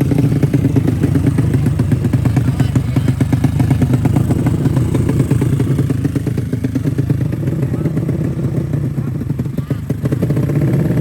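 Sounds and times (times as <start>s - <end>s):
motorcycle engine pulsing: 0.0s - 11.0s.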